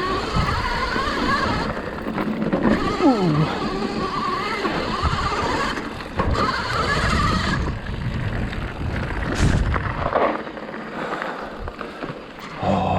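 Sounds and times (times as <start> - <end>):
tyres rolling over rough ground: 0.0 - 12.9
wind rushing over microphone: 2.8 - 10.2.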